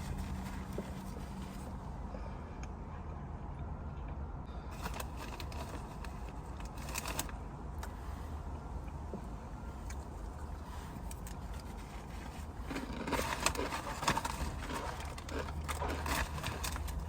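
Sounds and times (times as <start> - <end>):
person chewing food: 11.0 - 17.0
crisp crunching clicks: 12.4 - 17.0.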